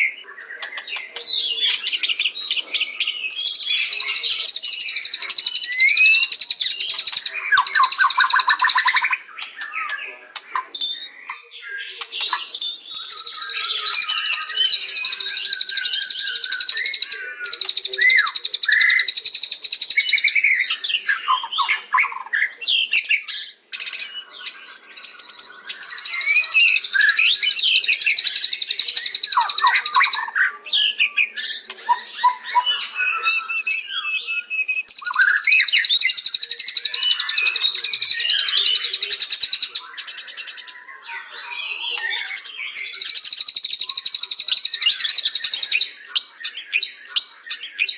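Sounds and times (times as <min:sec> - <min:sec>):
bird singing whistled phrases: 0:00.0 - 0:47.9
bird fast high chattering: 0:03.3 - 0:11.0.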